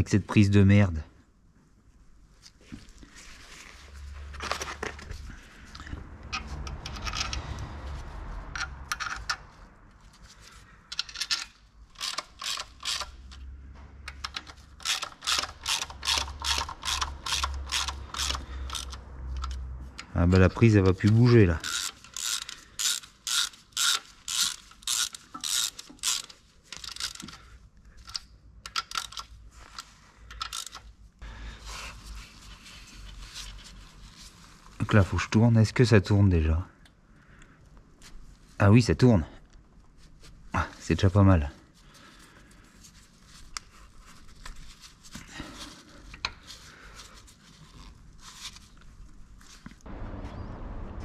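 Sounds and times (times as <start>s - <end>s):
tools and parts clicking and scraping: 4.2s - 31.0s, 42.3s - 49.9s
ratchet wrench clicking: 8.6s - 9.4s, 10.9s - 13.5s, 14.1s - 19.6s, 21.6s - 27.4s, 28.0s - 29.3s, 30.3s - 30.9s.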